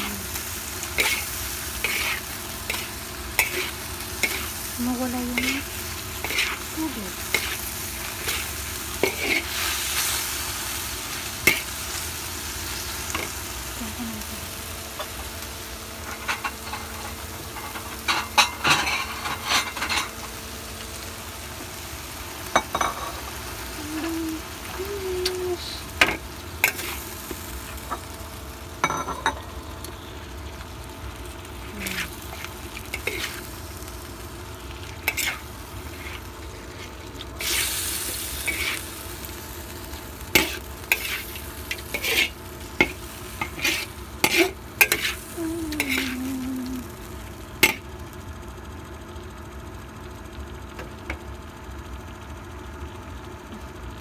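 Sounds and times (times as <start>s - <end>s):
meat sizzling in a pan: 0.0s - 49.5s
utensil scraping a pan: 1.0s - 4.5s, 40.4s - 45.2s.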